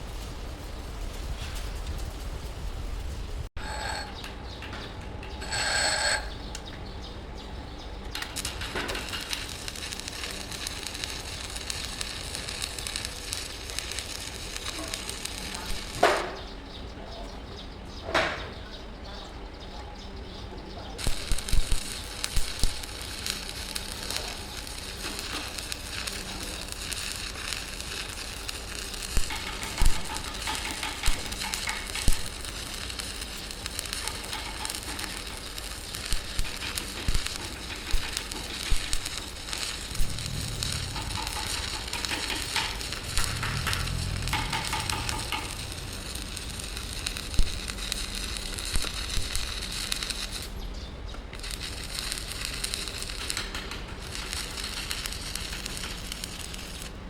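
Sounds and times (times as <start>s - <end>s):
welding arc crackling: 0.0s - 6.7s, 8.0s - 16.5s, 21.0s - 57.0s
sharp pops: 8.1s - 16.4s, 21.0s - 50.6s, 51.2s - 57.0s.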